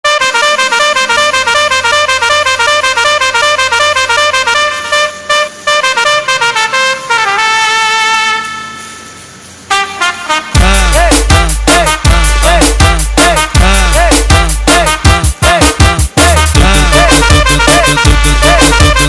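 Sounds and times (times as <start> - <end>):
brassy horn melody: 0.0 - 19.0
loud beat with heavy bass: 10.3 - 19.0.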